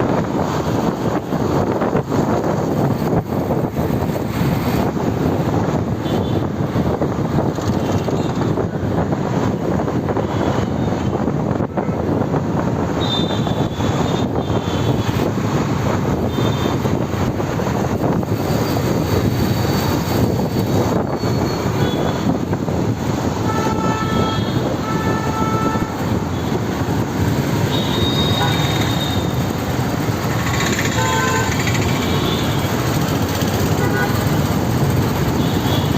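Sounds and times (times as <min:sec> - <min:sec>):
road and wind noise: 0:00.0 - 0:35.9.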